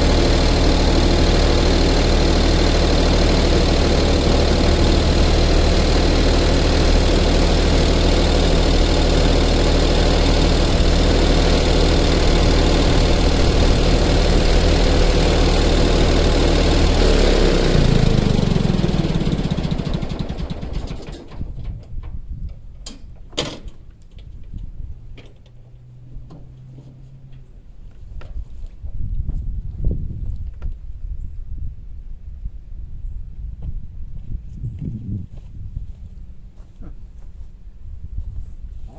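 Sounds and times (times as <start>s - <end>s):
engine running and winding down: 0.0s - 21.5s.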